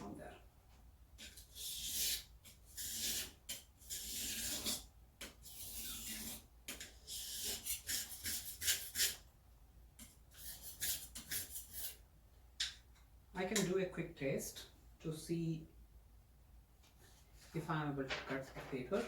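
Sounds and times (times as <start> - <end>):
knife scraping on whetstone: 1.2 - 9.2, 10.4 - 12.0.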